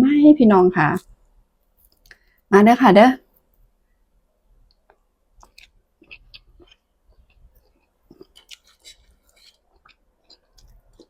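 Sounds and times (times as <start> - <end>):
mouth chewing food: 4.7 - 11.0.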